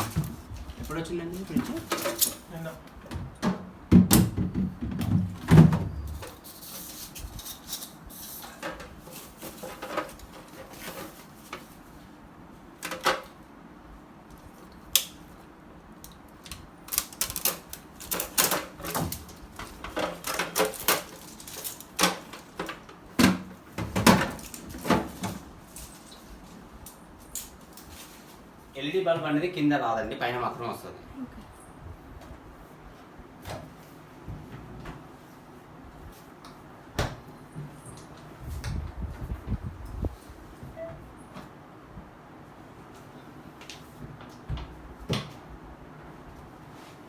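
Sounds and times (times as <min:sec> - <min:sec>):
refrigerator doors and drawers rattling: 0:00.0 - 0:11.8, 0:16.8 - 0:26.6.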